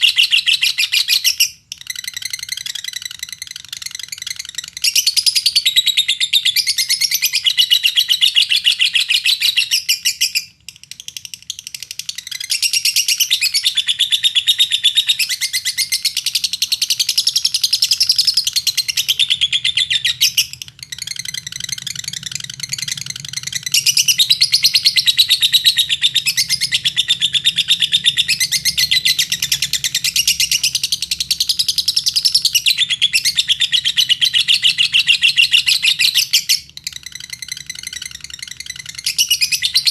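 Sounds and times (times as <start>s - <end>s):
lovebird chattering trill: 0.0s - 39.9s.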